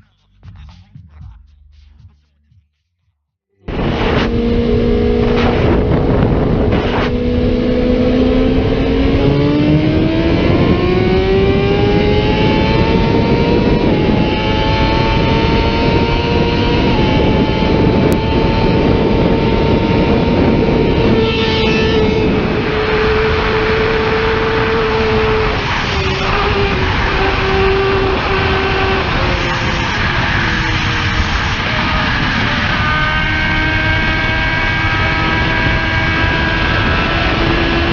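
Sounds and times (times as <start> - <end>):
motorcycle engine at high revs: 3.6 - 37.9
wind noise: 3.6 - 37.9.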